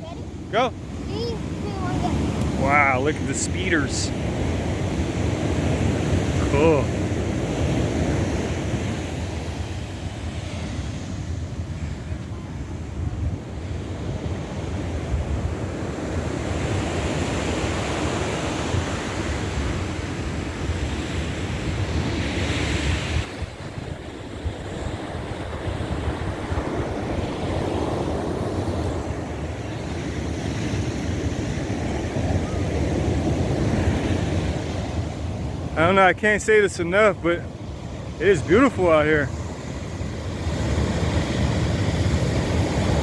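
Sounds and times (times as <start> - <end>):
ocean surf breaking: 0.0 - 43.0
wind rumbling on microphone: 7.0 - 35.8.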